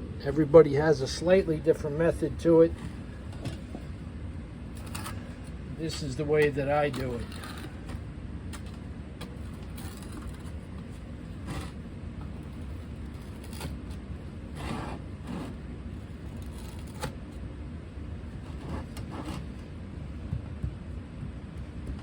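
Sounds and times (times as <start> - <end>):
steady low rumble: 0.0 - 13.3.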